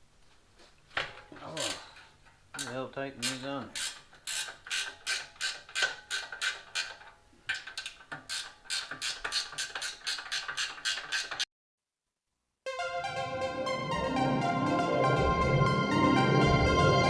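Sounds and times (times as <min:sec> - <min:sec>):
socket ratchet clicking: 0:01.6 - 0:11.4.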